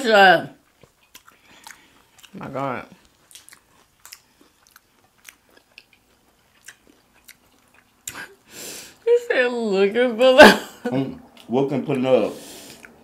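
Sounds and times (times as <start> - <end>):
soft chewing: 0.5 - 9.0, 11.1 - 11.6, 12.4 - 13.0.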